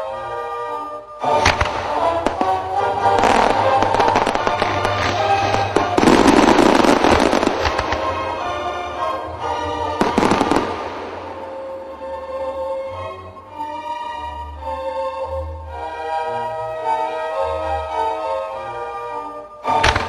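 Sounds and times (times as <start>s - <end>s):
music: 0.0s - 20.0s
fireworks crackling and banging: 1.2s - 12.2s, 19.7s - 20.0s.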